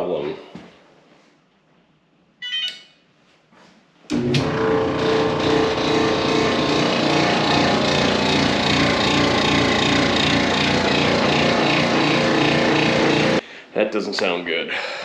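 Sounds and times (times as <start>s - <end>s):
clothes dryer drum rumbling: 4.1s - 13.4s.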